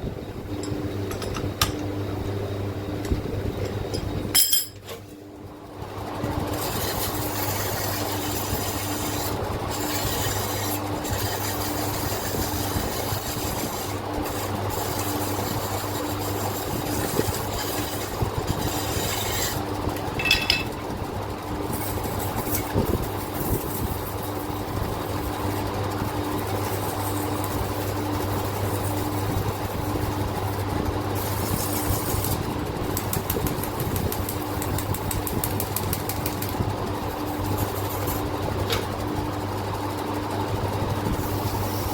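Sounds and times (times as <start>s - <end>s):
low machine hum: 0.0s - 41.9s
sandpaper scraping on metal: 6.5s - 19.6s, 31.2s - 32.4s.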